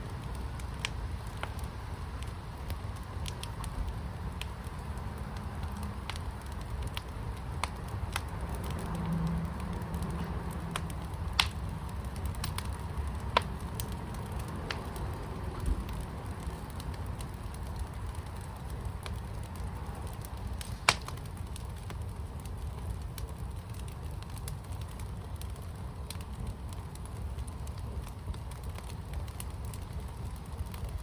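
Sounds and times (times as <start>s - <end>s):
fire crackling in a firepit: 0.0s - 31.0s.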